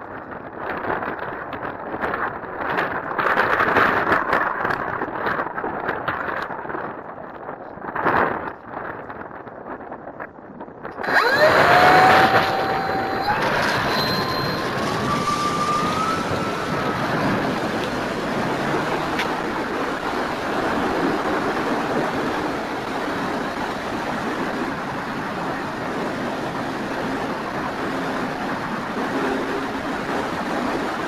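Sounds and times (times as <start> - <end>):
wind rushing over airframe: 10.8 - 31.0
electric motor whine: 11.0 - 31.0.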